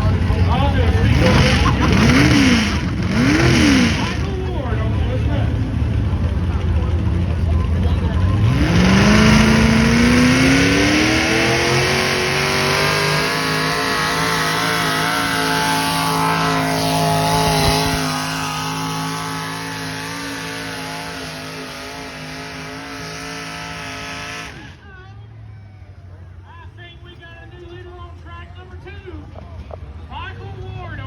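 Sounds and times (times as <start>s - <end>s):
vehicle engine revving hard: 0.0s - 6.2s, 8.1s - 24.8s.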